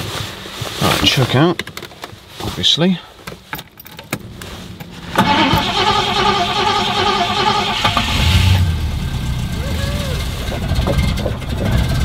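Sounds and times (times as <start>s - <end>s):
starter motor cranking engine: 5.1s - 8.9s
engine starting: 5.2s - 8.7s.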